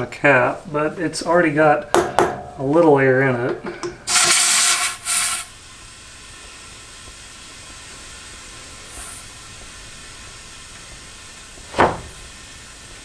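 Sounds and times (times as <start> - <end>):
air hissing into a tire: 4.0 - 13.0.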